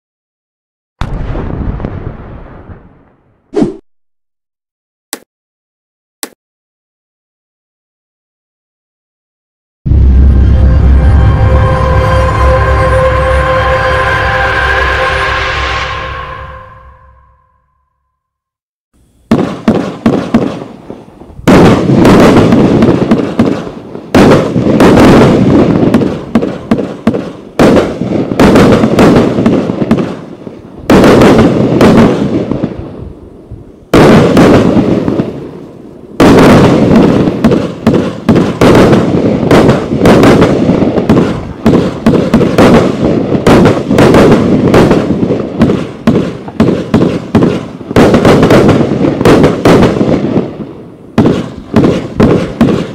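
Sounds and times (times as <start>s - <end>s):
firework battery firing: 19.0s - 32.5s, 36.2s - 52.9s.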